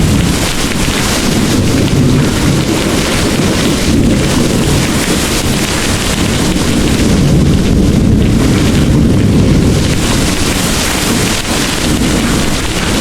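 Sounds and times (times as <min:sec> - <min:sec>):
distant thunder rumbling: 0:00.0 - 0:13.0
heavy rain pouring: 0:00.0 - 0:13.0.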